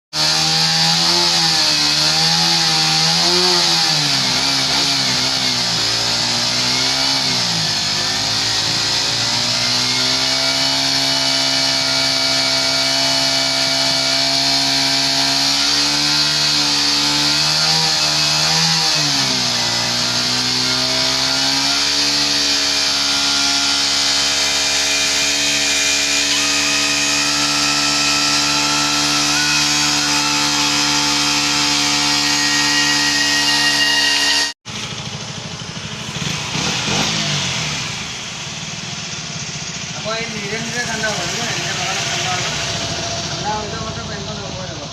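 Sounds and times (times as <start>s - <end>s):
vehicle engine idling: 34.7s - 44.9s.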